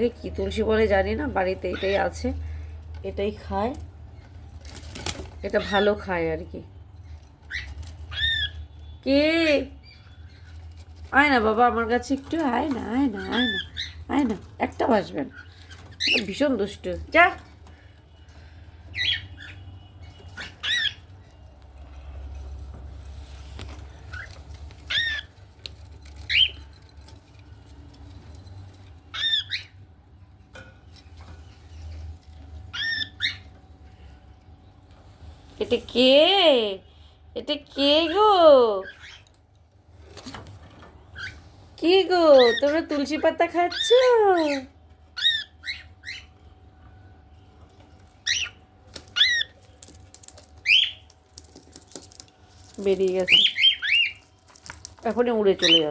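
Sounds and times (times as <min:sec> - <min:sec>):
cockatiels squawking: 0:00.4 - 0:02.3, 0:05.0 - 0:06.3, 0:07.3 - 0:08.9, 0:11.4 - 0:17.4, 0:18.9 - 0:21.4, 0:23.8 - 0:25.4, 0:26.0 - 0:26.7, 0:29.0 - 0:29.9, 0:32.6 - 0:33.6, 0:38.8 - 0:39.4, 0:41.1 - 0:41.6, 0:42.3 - 0:46.4, 0:48.2 - 0:49.6, 0:50.6 - 0:51.0, 0:53.0 - 0:54.3, 0:55.1 - 0:55.9
cockatiel chirps: 0:19.0 - 0:21.1, 0:32.7 - 0:33.5, 0:45.2 - 0:46.3, 0:48.2 - 0:49.6, 0:53.3 - 0:54.2
cockatiel squawks: 0:32.7 - 0:33.4.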